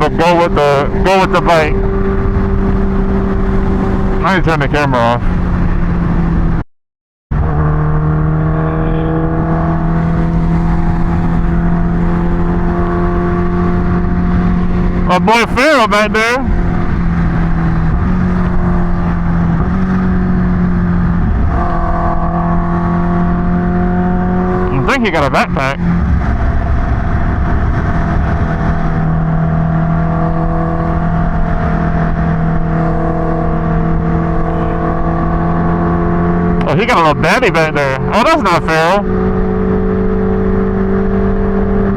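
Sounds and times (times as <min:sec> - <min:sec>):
wind rumbling on microphone: 0:00.8 - 0:04.3, 0:16.4 - 0:24.8, 0:25.8 - 0:36.6
motorcycle engine running: 0:16.4 - 0:41.9.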